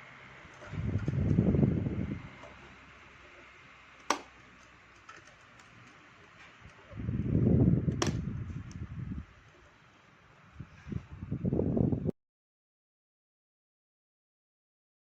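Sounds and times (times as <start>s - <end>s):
air gust on microphone: 0.6s - 2.4s, 6.9s - 9.4s, 10.5s - 12.1s
fan switch clicks: 4.0s - 4.7s, 7.8s - 8.8s
table fan hiss: 5.6s - 11.8s.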